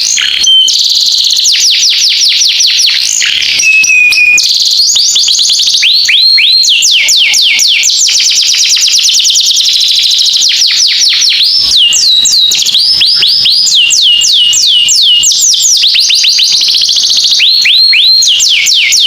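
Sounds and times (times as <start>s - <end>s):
bird singing rapid whistles: 0.0s - 19.0s.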